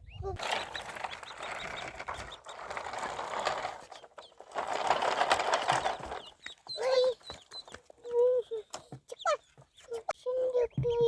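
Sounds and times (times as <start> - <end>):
poultry calls: 0.4 - 4.5, 5.7 - 8.2
fast dense rattling: 0.4 - 7.2.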